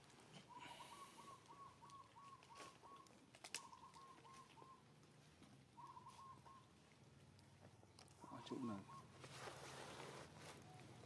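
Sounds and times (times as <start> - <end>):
bird calling faintly: 0.3 - 11.0.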